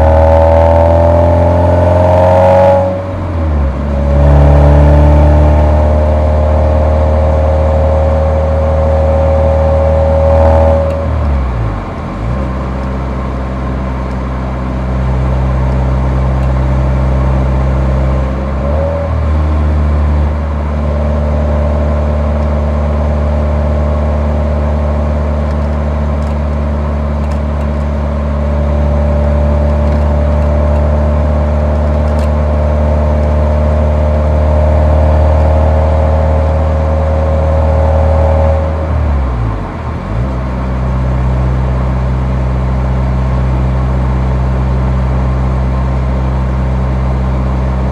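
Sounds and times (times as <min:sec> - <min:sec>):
car exhaust engine drone: 0:00.0 - 0:47.9.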